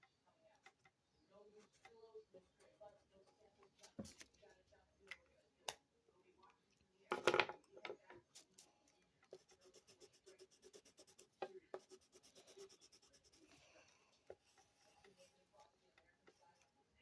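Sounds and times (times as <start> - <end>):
pencil strokes scratching on paper: 9.3 - 16.6.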